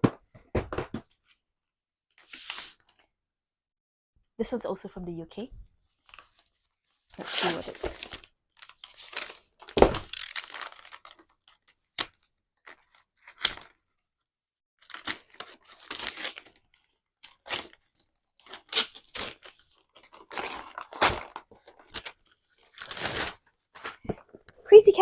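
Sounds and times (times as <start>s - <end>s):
parcel wrapping tearing: 8.6s - 11.3s, 14.8s - 17.8s, 18.4s - 24.0s.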